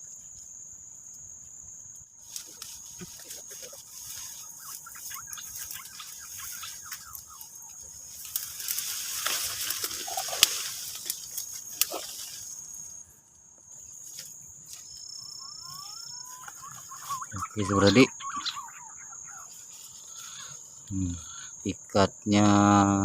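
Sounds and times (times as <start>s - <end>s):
insects trilling: 0.0s - 23.0s
rustling: 2.2s - 13.0s.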